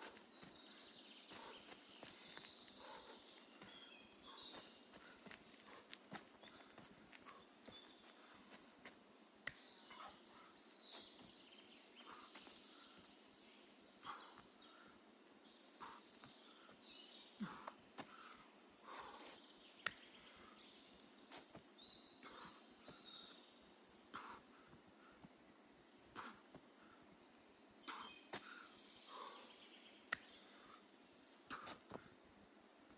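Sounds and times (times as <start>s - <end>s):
faint birdsong chirps: 0.0s - 32.9s
soft sharp clicks: 30.1s - 30.3s.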